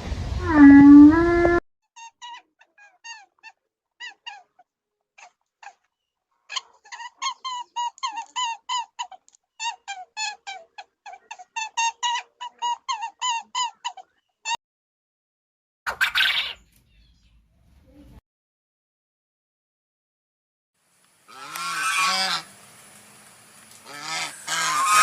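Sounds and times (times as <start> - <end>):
small animal peeping: 15.9 - 17.4.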